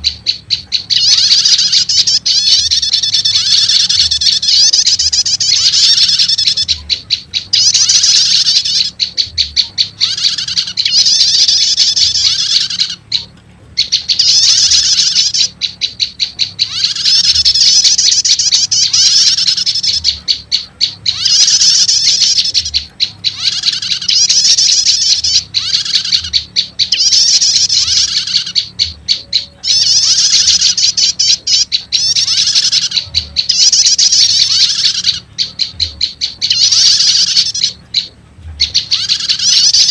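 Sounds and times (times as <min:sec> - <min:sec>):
buzzy bird trilling: 0:00.0 - 0:39.9
sharp ticking bird notes: 0:00.0 - 0:39.9.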